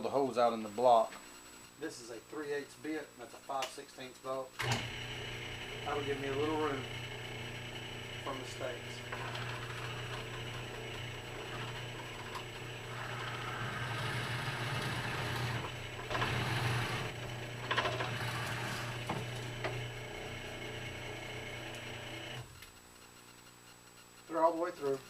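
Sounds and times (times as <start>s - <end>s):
drill press motor running: 4.6s - 22.8s
drill bit boring through wood: 4.7s - 22.5s.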